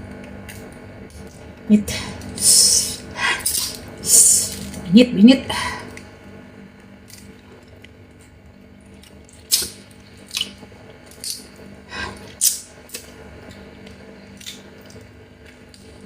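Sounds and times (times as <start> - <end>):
steady low hum: 0.0 - 16.0
crab shell cracking while eating: 0.1 - 1.4, 3.4 - 4.9, 6.7 - 16.0.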